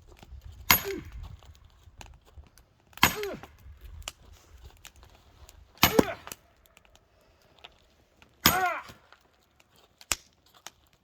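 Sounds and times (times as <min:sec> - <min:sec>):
heavy blows on firewood: 0:00.6 - 0:01.5, 0:03.0 - 0:03.8, 0:05.8 - 0:06.4, 0:08.4 - 0:09.2.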